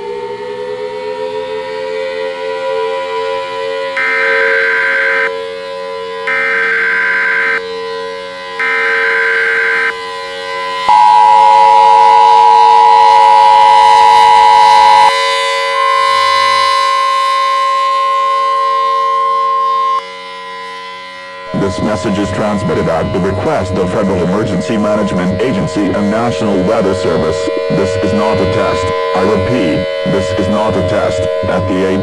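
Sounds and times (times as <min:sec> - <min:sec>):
screeching data tone bursts: 0:04.0 - 0:05.3, 0:06.3 - 0:07.6, 0:08.6 - 0:20.0, 0:21.5 - 0:32.0
steady lower tone: 0:04.0 - 0:32.0
single steady tone: 0:08.6 - 0:15.2
two-tone attention signal: 0:08.6 - 0:20.0, 0:21.4 - 0:32.0.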